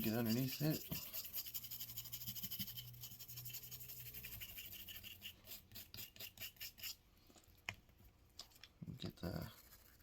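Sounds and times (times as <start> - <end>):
brush scrubbing metal: 0.0 - 7.0.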